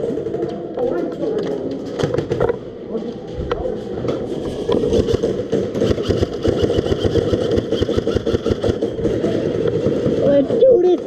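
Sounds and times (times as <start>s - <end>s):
airsoft guns firing bursts: 4.8s - 10.4s.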